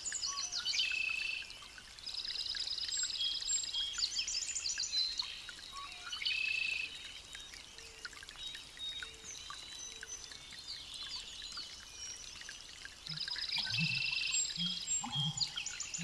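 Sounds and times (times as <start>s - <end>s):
small birds chirping: 6.7s - 16.0s.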